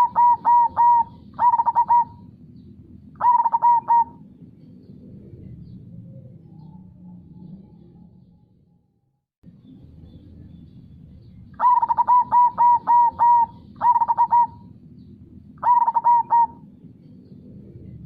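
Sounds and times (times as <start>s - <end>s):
dove cooing: 0.0s - 2.4s, 3.0s - 4.4s, 11.6s - 14.8s, 15.6s - 16.8s.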